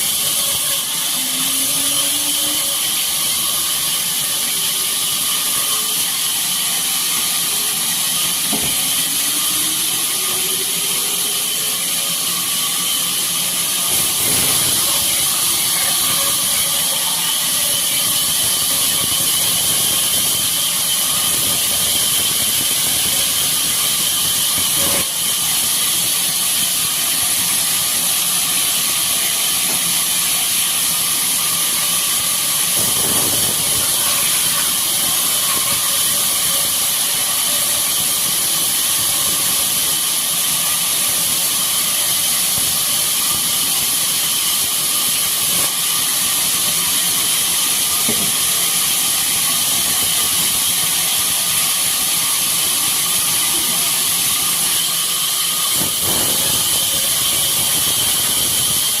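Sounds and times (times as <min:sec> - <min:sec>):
sawmill machinery hissing and whining: 0:00.0 - 0:59.0.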